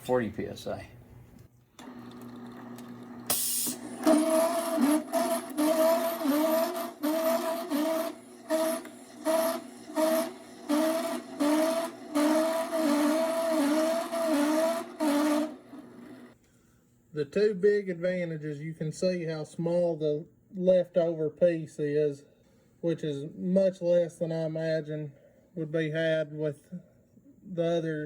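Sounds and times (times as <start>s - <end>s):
grinder humming: 1.8s - 16.4s
short air hiss: 3.3s - 3.8s
grinder grinding bone in pulses: 3.9s - 15.9s.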